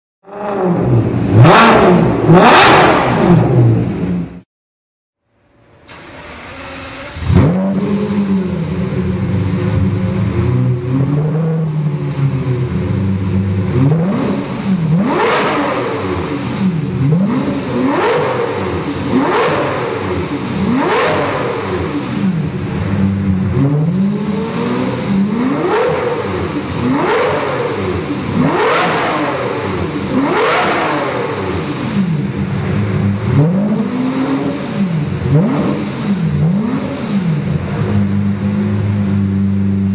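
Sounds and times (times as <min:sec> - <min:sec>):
car engine revving loudly: 0:00.3 - 0:04.4, 0:05.9 - 0:39.9
car engine idling: 0:05.3 - 0:15.2, 0:31.0 - 0:39.9.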